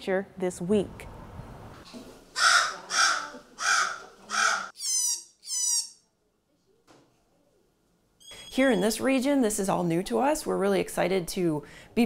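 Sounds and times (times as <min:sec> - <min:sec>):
bird cawing harshly: 0:02.4 - 0:05.9.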